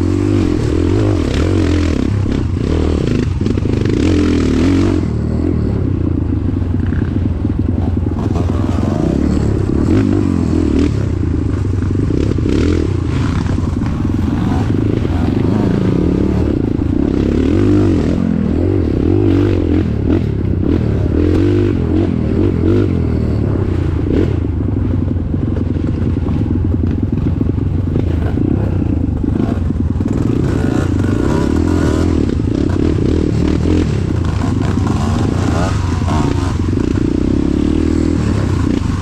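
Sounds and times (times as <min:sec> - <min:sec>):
vehicle engine revving: 0:06.8 - 0:24.6, 0:26.8 - 0:39.0.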